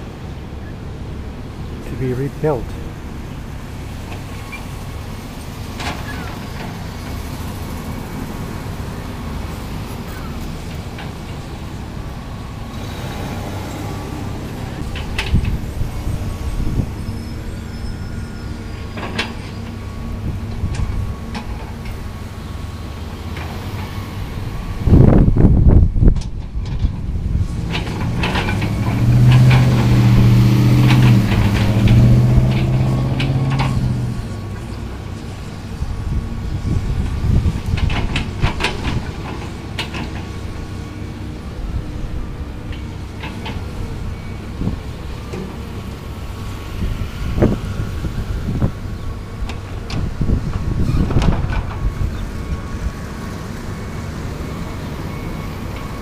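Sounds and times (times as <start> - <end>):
road traffic rumble: 0.0 - 56.0
vehicle engine running: 26.9 - 40.7
clanks and clicks: 27.6 - 34.0, 37.7 - 40.3.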